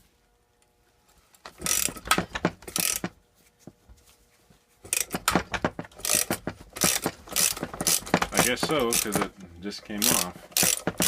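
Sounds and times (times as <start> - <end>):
ratchet wrench clicking: 1.5 - 3.1, 4.9 - 5.4, 6.0 - 9.4, 10.0 - 11.0.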